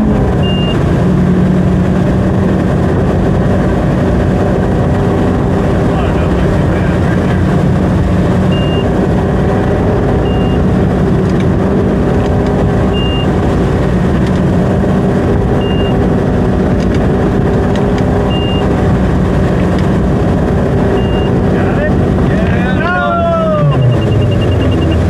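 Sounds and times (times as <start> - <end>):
boat engine running: 0.0 - 25.0
short high electronic beep: 0.4 - 0.8, 8.5 - 8.9, 10.2 - 10.6, 12.9 - 13.3, 15.6 - 16.0, 18.3 - 18.7, 20.9 - 21.4, 23.7 - 25.0.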